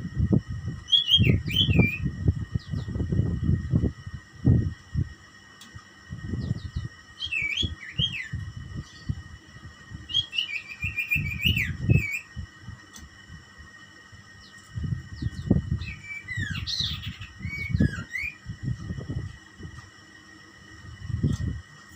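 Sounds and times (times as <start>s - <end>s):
low rumbling: 0.0s - 5.2s.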